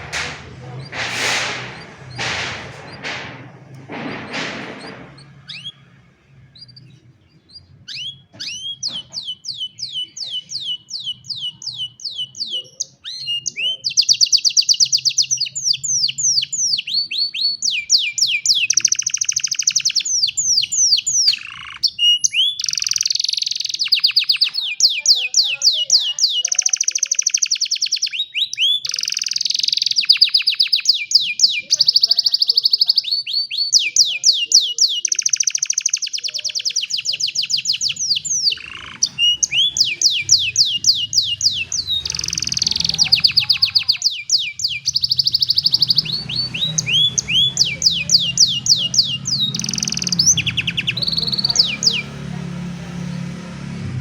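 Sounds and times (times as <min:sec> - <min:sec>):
short rushing noises: 0:00.0 - 0:06.6
canary singing trills: 0:04.2 - 0:54.0.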